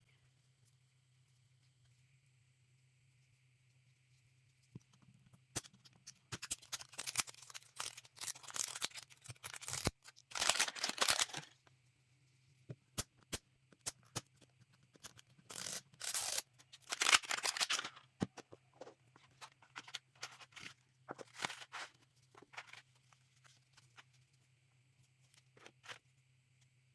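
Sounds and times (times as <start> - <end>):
plastic packaging crinkling: 6.4 - 11.6, 15.4 - 18.2.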